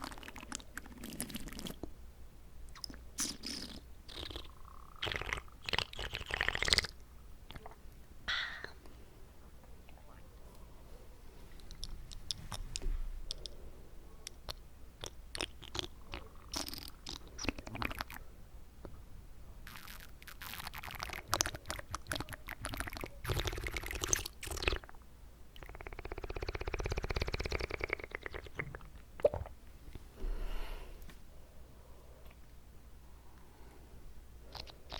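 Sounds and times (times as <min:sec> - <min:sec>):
wet mouth sounds: 0:00.0 - 0:02.0, 0:02.7 - 0:08.9, 0:14.2 - 0:18.2, 0:19.6 - 0:25.0, 0:25.6 - 0:29.6, 0:34.5 - 0:34.9.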